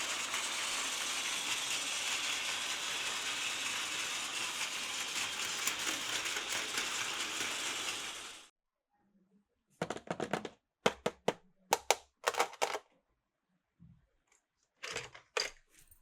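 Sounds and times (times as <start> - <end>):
fine clicking of toy train: 0.0 - 8.5
toy train motor whirring: 0.0 - 8.5.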